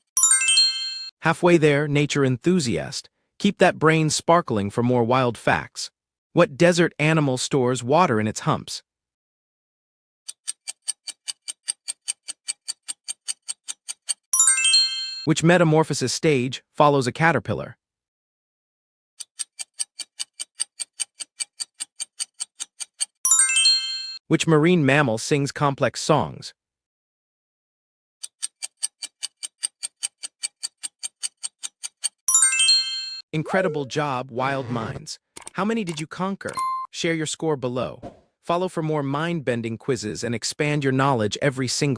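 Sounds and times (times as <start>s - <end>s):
descending chime tones: 0.2s - 1.1s, 14.4s - 15.3s, 23.3s - 24.2s, 32.3s - 34.0s
clock ticking: 10.3s - 14.3s, 19.2s - 23.2s, 28.2s - 32.2s.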